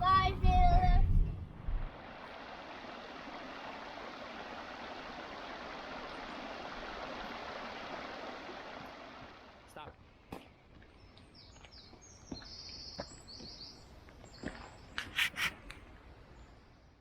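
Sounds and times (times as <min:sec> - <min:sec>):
running water rushing: 0:01.8 - 0:09.8.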